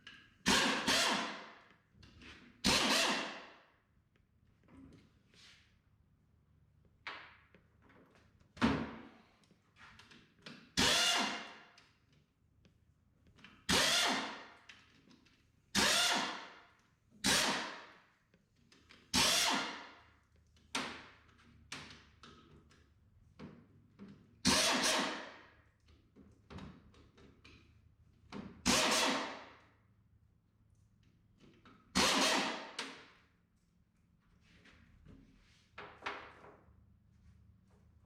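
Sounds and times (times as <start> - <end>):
power tool trigger bursts: 2.7 - 3.4, 13.7 - 14.4, 15.8 - 16.4, 19.2 - 19.8, 24.5 - 25.3, 28.6 - 29.4, 32.0 - 32.8.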